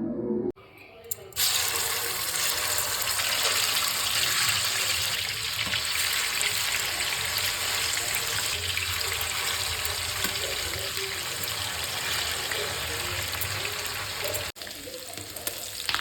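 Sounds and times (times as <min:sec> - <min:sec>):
water running from tap: 0:01.4 - 0:16.0.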